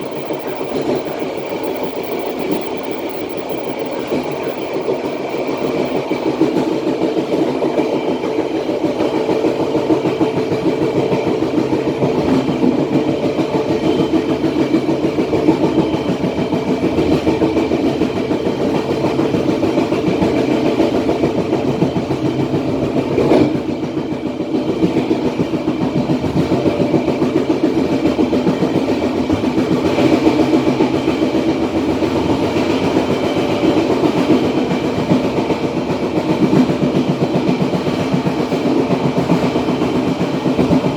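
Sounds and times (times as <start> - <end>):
faint high ringing: 0.0 - 6.5.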